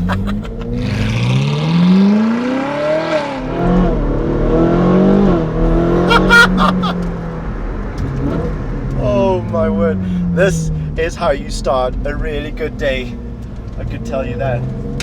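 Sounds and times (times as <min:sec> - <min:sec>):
sports car engine accelerating: 0:00.0 - 0:06.1.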